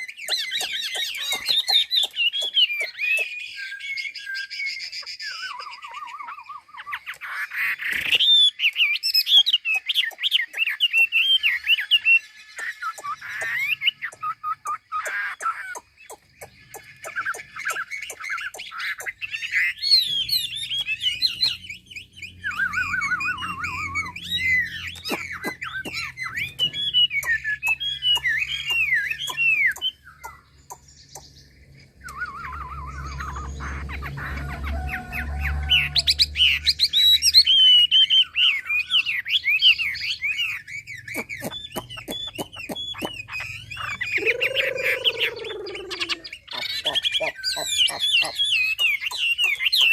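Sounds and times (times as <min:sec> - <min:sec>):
songbird warbling and trilling: 0:00.0 - 0:49.9
low falling bird call: 0:12.6 - 0:49.9.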